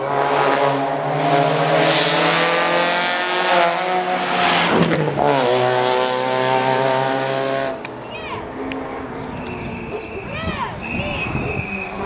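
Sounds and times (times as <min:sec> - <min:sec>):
rally car engine high revs: 0:00.0 - 0:07.8.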